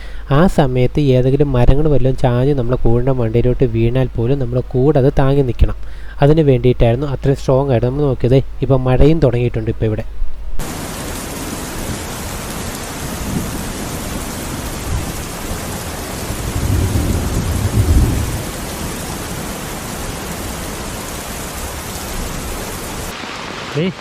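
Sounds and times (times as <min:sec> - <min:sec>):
steady rain falling: 0:10.6 - 0:24.0.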